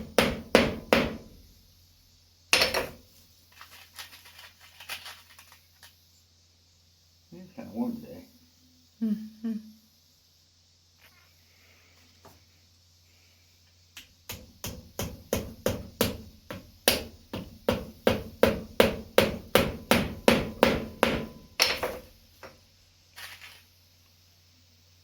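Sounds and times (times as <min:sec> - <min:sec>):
hammer tapping nails: 0:00.0 - 0:01.4, 0:14.0 - 0:22.1.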